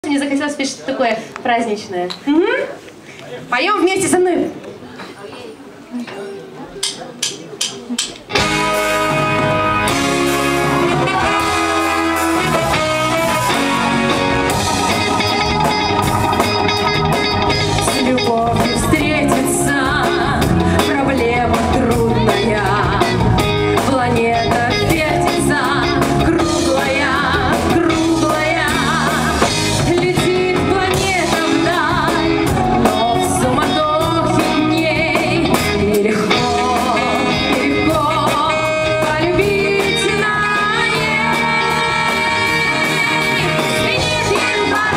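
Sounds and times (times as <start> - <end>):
guitar and drums backing: 5.5 - 44.9
woman singing: 17.8 - 44.9.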